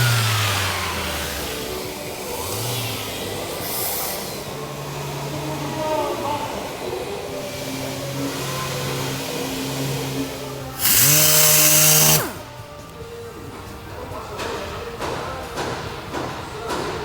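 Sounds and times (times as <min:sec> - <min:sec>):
power tool motor spinning: 0:00.0 - 0:05.7, 0:07.5 - 0:12.6.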